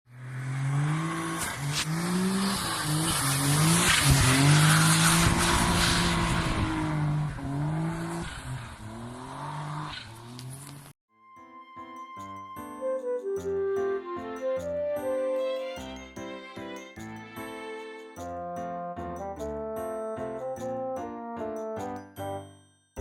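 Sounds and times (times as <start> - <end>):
car engine revving: 0.1 - 10.9.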